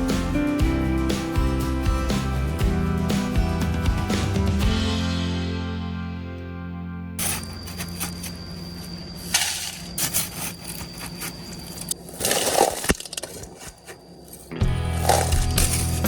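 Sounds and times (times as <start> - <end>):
scraping rushes: 7.2 - 16.0
hard objects clicking and clinking: 9.2 - 13.8, 14.4 - 16.0.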